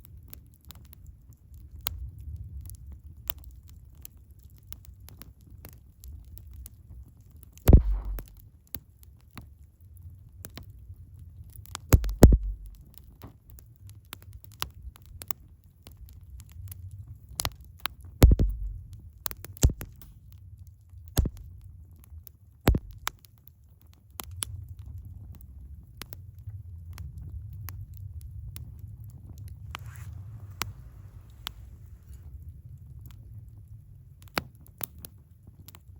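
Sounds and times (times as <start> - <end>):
wood fire crackling: 0.1 - 35.9
loud sharp pops: 7.7 - 8.4, 11.9 - 13.0, 18.2 - 20.2, 21.2 - 21.5, 22.7 - 23.1
low rumble: 7.7 - 8.4, 12.0 - 12.8, 18.2 - 19.0, 22.7 - 23.1.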